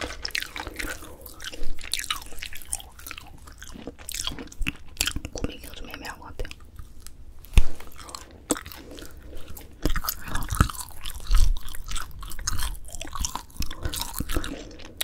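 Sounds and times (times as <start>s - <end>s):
crunchy chewing: 0.0s - 15.0s.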